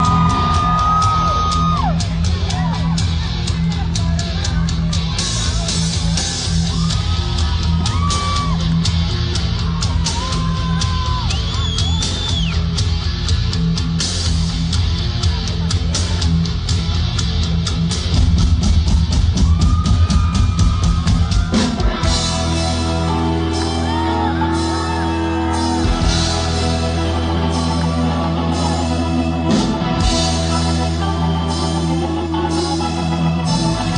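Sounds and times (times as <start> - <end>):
crowd shouting and whooping: 0.0 - 12.8, 18.8 - 33.9
driving rock drums: 0.0 - 33.9
electric guitar bending notes: 21.5 - 33.9
sustained organ chords: 22.1 - 33.9.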